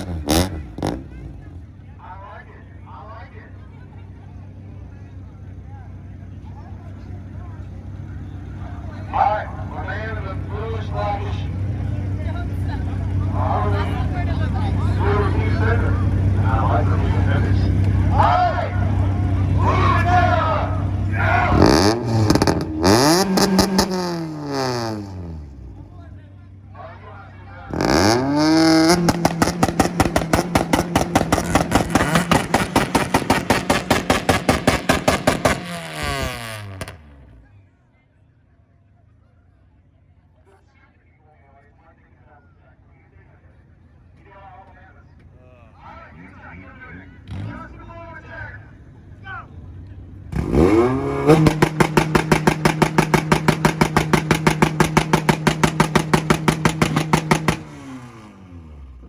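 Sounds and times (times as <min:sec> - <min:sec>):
car engine popping on rev limiter: 0:00.0 - 0:01.4, 0:21.5 - 0:25.4, 0:27.7 - 0:37.4, 0:50.3 - 0:58.2.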